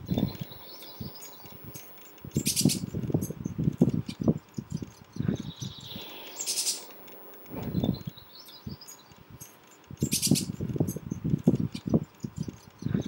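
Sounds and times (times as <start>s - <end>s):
high thin bird chirps: 0.0s - 13.0s
low rumbling bumps: 6.8s - 8.8s.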